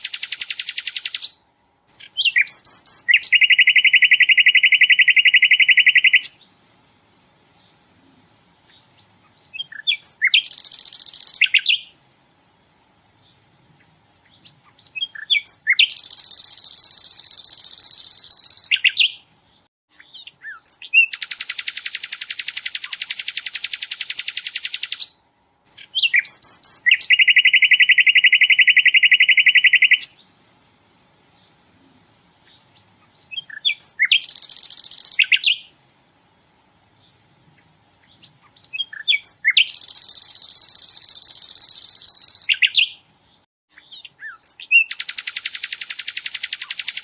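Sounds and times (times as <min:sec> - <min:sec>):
bird rapid trills: 0:00.0 - 0:06.4, 0:08.9 - 0:11.9, 0:14.4 - 0:19.2, 0:20.2 - 0:30.2, 0:32.7 - 0:35.7, 0:38.2 - 0:43.0, 0:43.9 - 0:47.0
bird chirps: 0:00.0 - 0:06.5, 0:08.6 - 0:12.0, 0:13.2 - 0:30.3, 0:32.4 - 0:35.8, 0:37.0 - 0:47.0.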